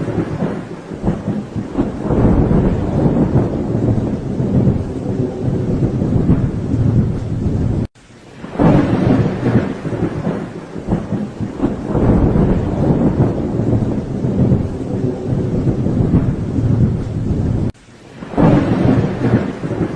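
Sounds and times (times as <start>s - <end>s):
steady rain: 0.0s - 19.9s
thunder rumbling: 0.0s - 19.9s.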